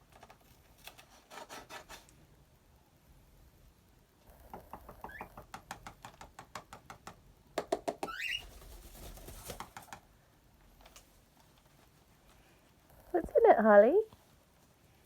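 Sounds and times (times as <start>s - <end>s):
bird pecking cardboard box: 4.4s - 10.1s.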